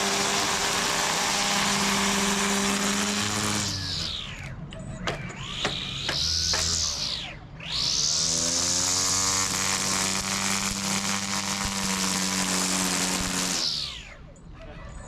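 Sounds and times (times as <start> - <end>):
string trimmer motor: 0.0 - 4.5, 5.4 - 14.2.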